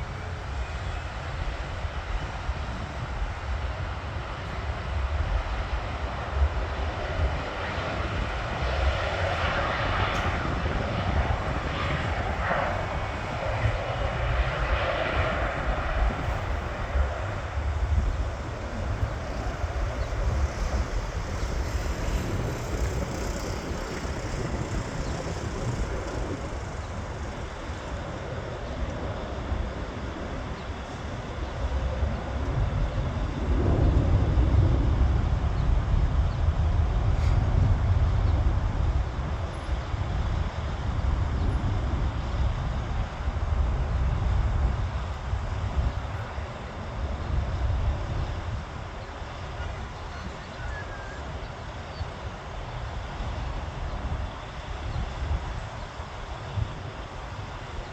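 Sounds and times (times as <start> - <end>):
jet engines at takeoff: 0.0 - 57.9
deep low rumble: 4.7 - 29.1.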